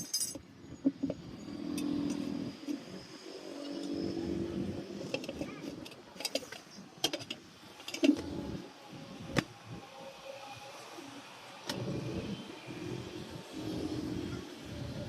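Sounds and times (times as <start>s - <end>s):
tools clinking: 0.0s - 0.4s.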